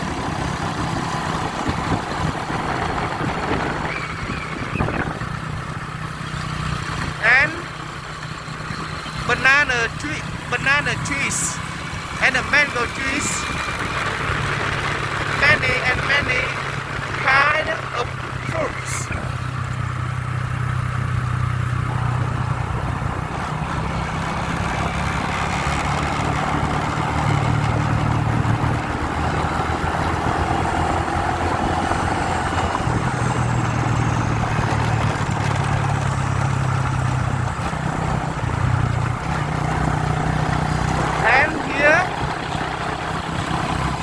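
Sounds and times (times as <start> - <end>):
motorbike engine running: 13.4 - 17.2, 19.1 - 44.0.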